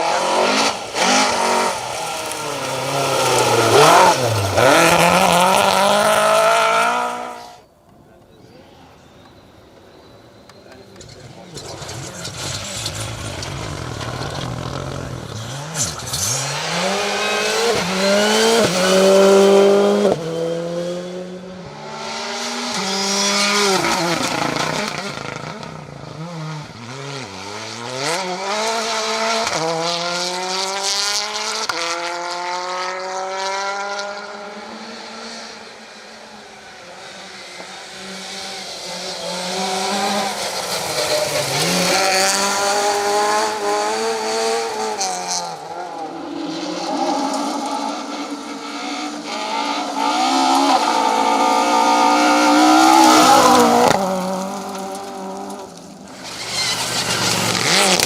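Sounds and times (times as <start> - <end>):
rally car engines revving: 0.0 - 7.7, 8.6 - 58.0
tyre squeal: 56.1 - 58.0.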